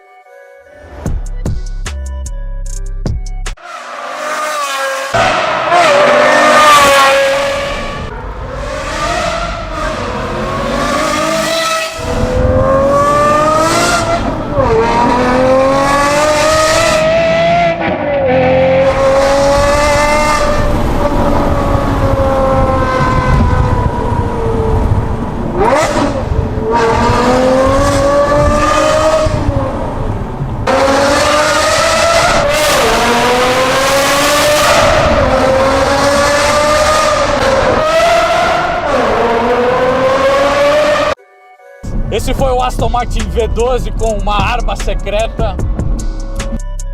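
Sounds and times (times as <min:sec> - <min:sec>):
car engine accelerating hard: 0:04.1 - 0:41.2.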